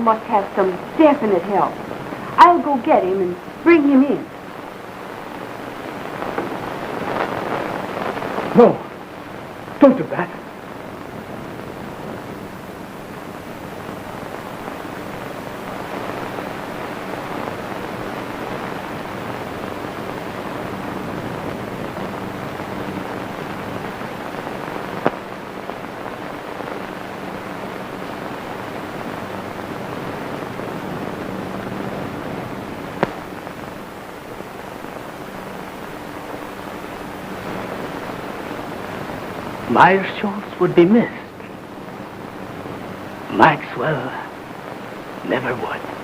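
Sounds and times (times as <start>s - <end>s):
film soundtrack hiss and crackle: 0.0s - 46.0s
sharp pops: 5.4s - 8.5s, 32.9s - 33.7s.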